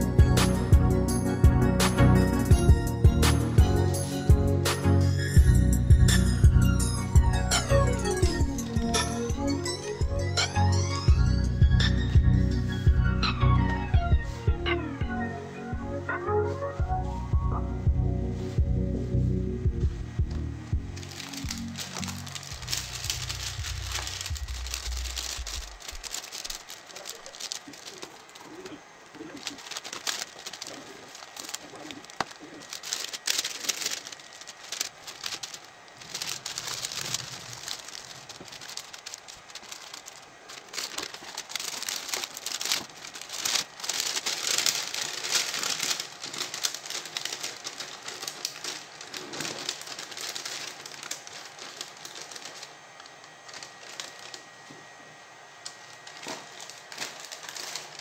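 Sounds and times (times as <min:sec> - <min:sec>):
music: 0:00.0 - 0:25.8
plastic bags crinkling: 0:06.2 - 0:14.4, 0:20.8 - 0:55.0, 0:55.6 - 0:58.0.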